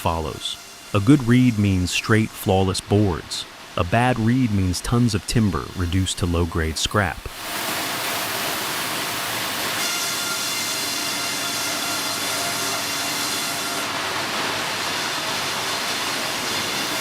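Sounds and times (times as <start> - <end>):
bandsaw cutting log: 0.0 - 2.3, 7.3 - 17.0.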